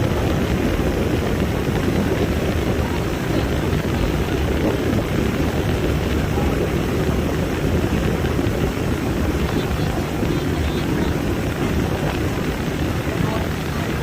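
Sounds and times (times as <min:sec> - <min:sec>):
boat motor running: 0:00.0 - 0:14.0
wind buffeting microphone: 0:00.0 - 0:14.0.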